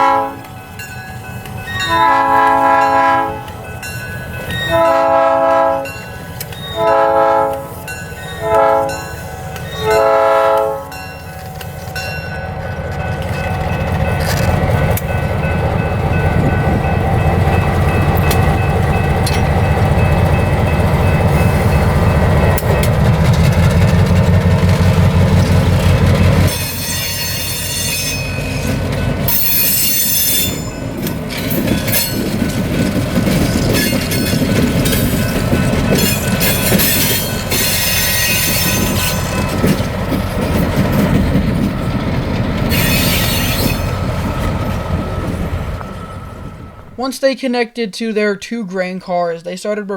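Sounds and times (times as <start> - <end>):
steel wheels squealing on rails: 0.0 - 23.0, 24.8 - 47.1
moving train rumble: 0.0 - 47.3
locomotive diesel engine rumble: 11.6 - 26.8, 38.8 - 47.2.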